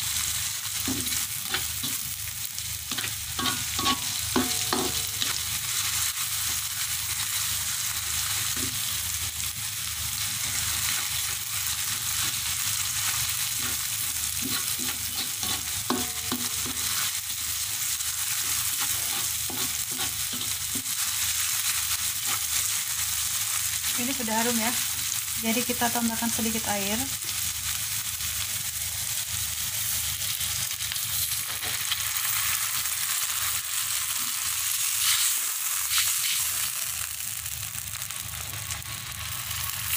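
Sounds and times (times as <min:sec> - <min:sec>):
food sizzling in oil: 0:00.0 - 0:39.9
spatula scraping and tapping pan: 0:00.8 - 0:02.1, 0:02.9 - 0:05.5, 0:13.6 - 0:17.1, 0:18.4 - 0:21.0.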